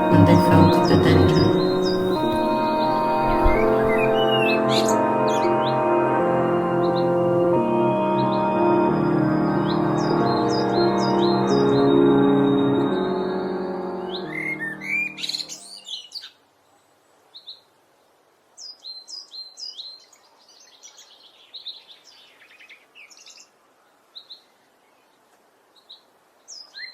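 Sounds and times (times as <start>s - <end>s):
blackbird singing: 0.0s - 4.6s
ambient music: 0.0s - 15.6s.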